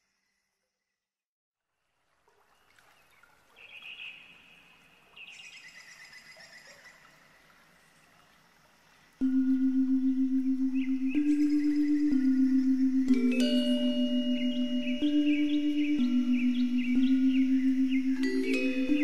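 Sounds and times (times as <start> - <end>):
background hiss: 2.3 - 19.0
faint birdsong: 2.4 - 19.0.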